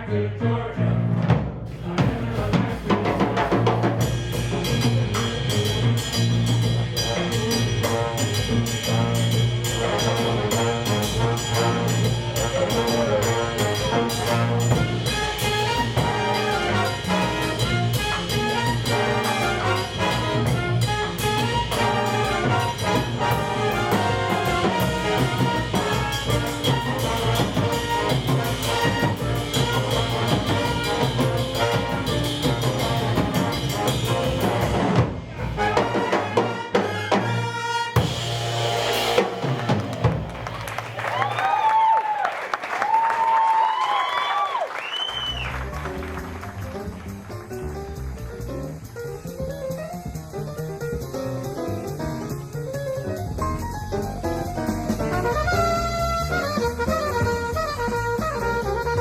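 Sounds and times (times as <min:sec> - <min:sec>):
jazz band playing: 0:00.8 - 0:41.9, 0:44.8 - 0:59.0
brass horns: 0:01.7 - 0:41.5, 0:54.6 - 0:59.0.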